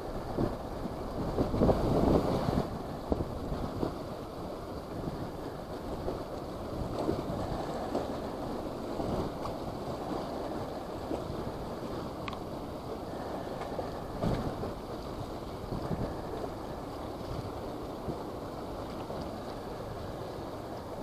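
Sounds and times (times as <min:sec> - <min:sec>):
strong wind buffeting microphone: 0:00.0 - 0:21.0
faint tick: 0:12.2 - 0:12.5.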